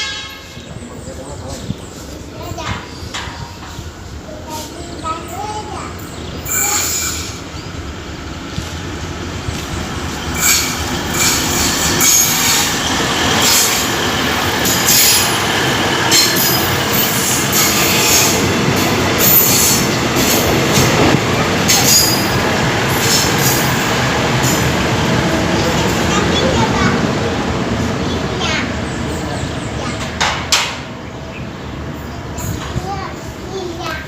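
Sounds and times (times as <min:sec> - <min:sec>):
train passing on rails: 0:00.0 - 0:34.0
high wheel squeal: 0:06.4 - 0:07.7, 0:10.3 - 0:18.4.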